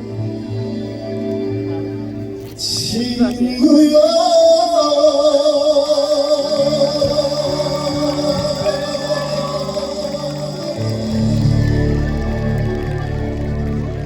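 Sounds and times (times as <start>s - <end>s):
low bass notes: 10.3s - 14.0s.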